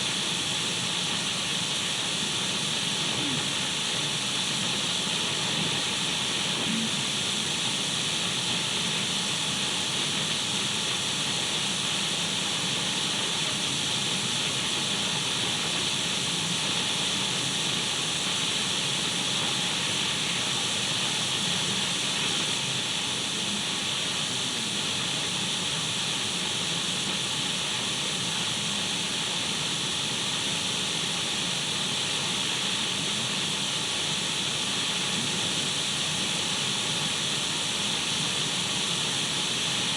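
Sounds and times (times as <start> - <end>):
radio static hiss: 2.9 - 7.7, 34.8 - 36.0.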